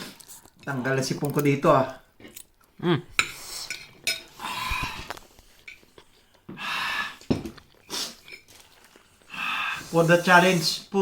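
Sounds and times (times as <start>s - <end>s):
cutlery clinking against a bowl: 3.2s - 4.4s
breathy bursts of noise: 9.2s - 10.8s.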